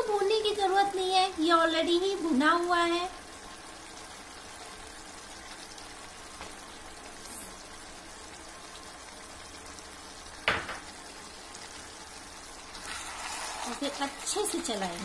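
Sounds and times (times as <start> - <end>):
curry sizzling in a pot: 0.0 - 15.0.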